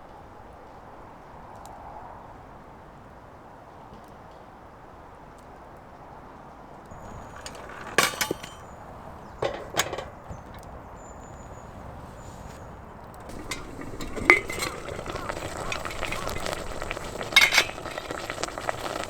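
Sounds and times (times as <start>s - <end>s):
steady low hiss: 6.9s - 19.0s
cookware clinking and knocking: 7.0s - 10.4s, 13.2s - 19.0s.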